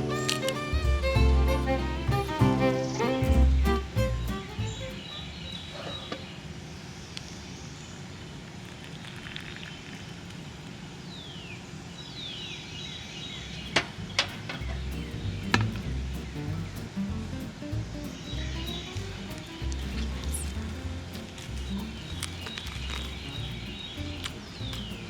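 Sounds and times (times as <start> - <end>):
bird chirping: 0.0 - 8.0, 18.0 - 25.0.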